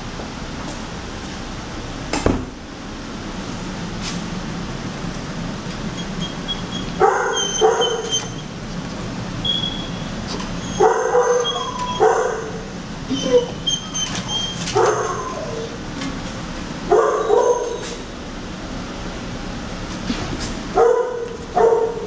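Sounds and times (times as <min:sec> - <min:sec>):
dogs whining: 0:05.9 - 0:08.6, 0:09.4 - 0:15.9, 0:16.9 - 0:18.0
dogs barking: 0:06.8 - 0:08.4, 0:10.6 - 0:15.8, 0:16.8 - 0:18.0, 0:20.7 - 0:22.0.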